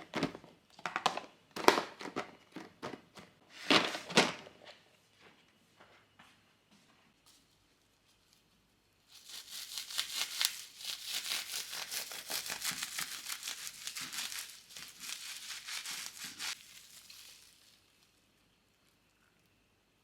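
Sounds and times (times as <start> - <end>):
crinkling and rustling: 0.0 - 5.4, 7.2 - 18.5.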